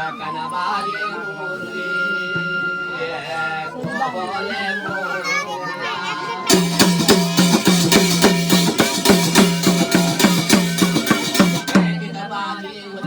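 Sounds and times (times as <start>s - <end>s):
hand drum beating fast rhythm: 6.5s - 12.3s.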